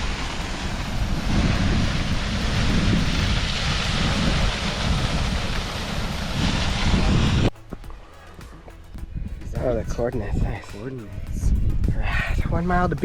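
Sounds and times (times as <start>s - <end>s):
waterfall rushing: 0.0s - 7.5s
wind buffeting microphone: 0.0s - 7.9s, 8.9s - 13.0s.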